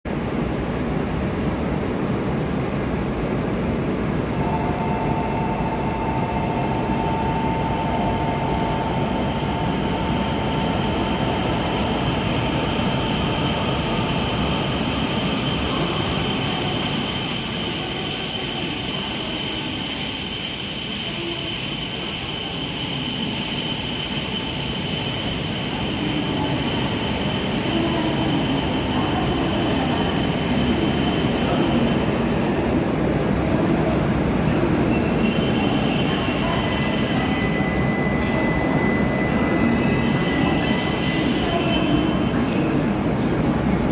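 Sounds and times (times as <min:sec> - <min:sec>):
train rumble: 0:00.1 - 0:20.2, 0:21.1 - 0:43.9
high-pitched whines: 0:04.4 - 0:32.4.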